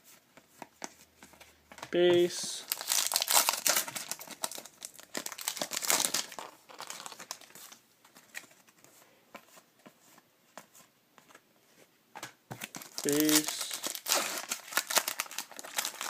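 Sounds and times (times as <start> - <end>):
foil wrapper crinkling: 2.7 - 7.8, 12.7 - 16.0.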